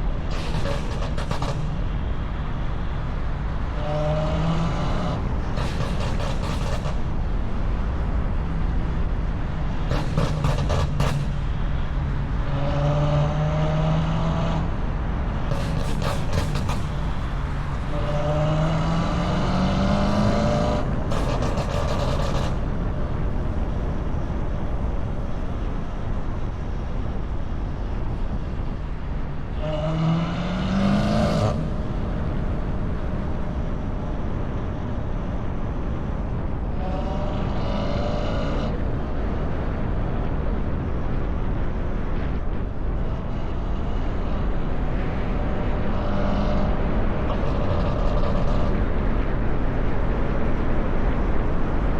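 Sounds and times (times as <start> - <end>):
car engine accelerating: 0.2 - 8.1, 12.3 - 24.3, 27.6 - 51.9
steady low rumble: 20.8 - 29.9, 31.5 - 37.7, 38.7 - 51.9.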